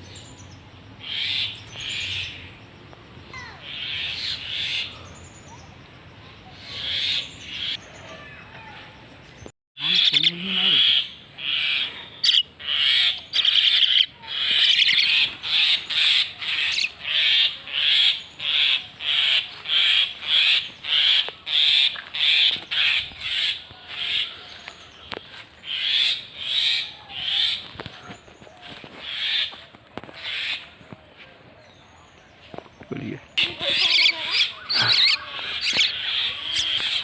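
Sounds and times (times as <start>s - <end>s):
myna harsh rasping calls: 9.8s - 24.4s, 33.4s - 37.0s.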